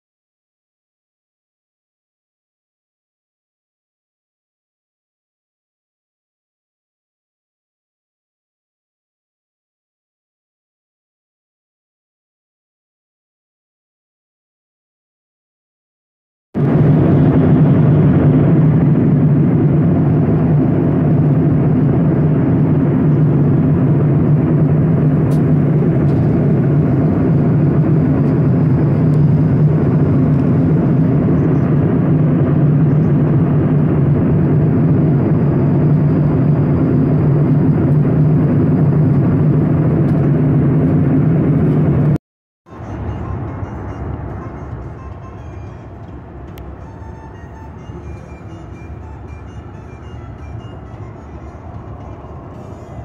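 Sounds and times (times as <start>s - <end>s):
vehicle cabin drone: 16.6s - 53.0s.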